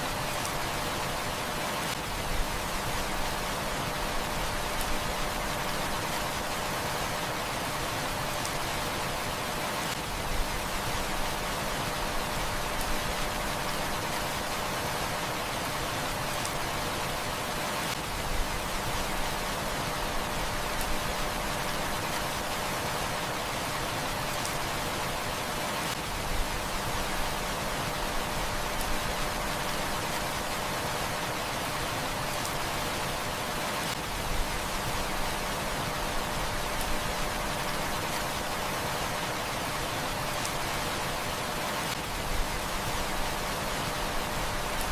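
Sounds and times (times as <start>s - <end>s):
heavy rain hissing: 0.0s - 44.9s.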